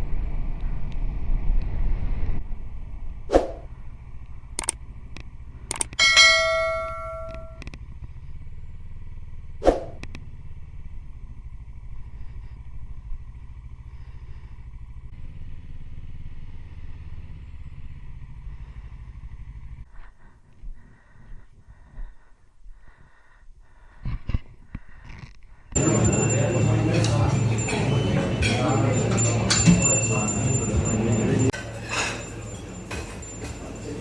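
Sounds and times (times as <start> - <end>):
motorcycle engine idling: 6.2 - 19.9.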